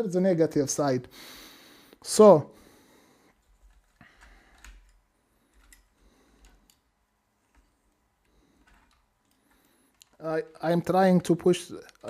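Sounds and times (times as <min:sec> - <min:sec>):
faint plastic clicks: 0:03.3 - 0:12.0.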